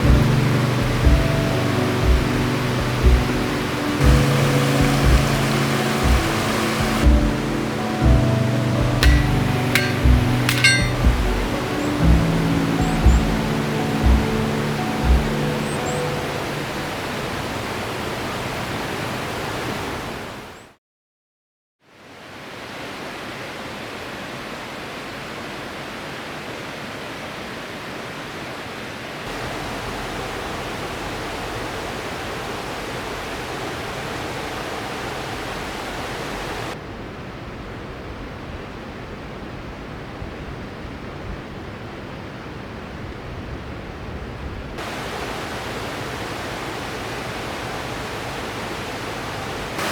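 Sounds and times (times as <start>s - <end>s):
rushing river water: 0.0s - 20.8s, 21.9s - 49.9s.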